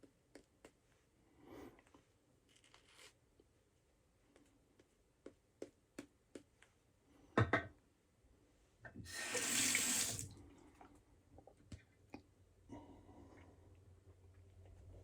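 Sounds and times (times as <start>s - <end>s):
sink tap running: 9.1s - 10.3s.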